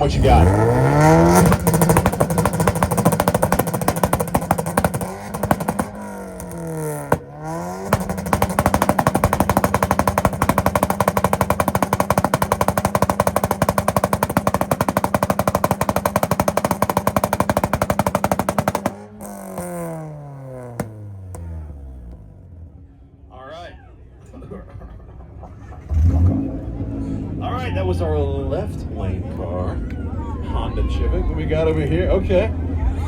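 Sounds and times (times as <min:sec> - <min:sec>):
engine popping on rev limiter: 0:00.0 - 0:22.5
sharp exhaust crack: 0:00.0 - 0:22.6.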